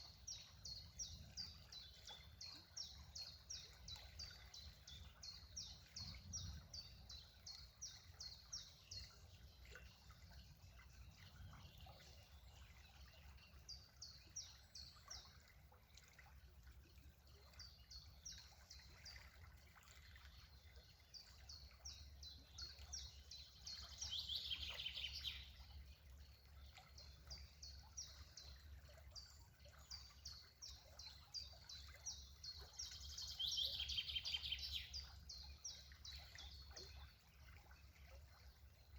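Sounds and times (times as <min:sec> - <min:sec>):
songbird chirping: 0:17.4 - 0:38.9.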